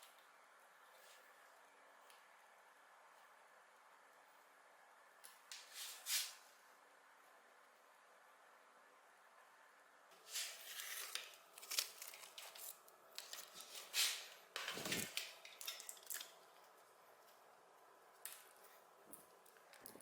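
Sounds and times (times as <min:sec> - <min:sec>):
small hard parts clicking and scraping: 0:14.6 - 0:16.8.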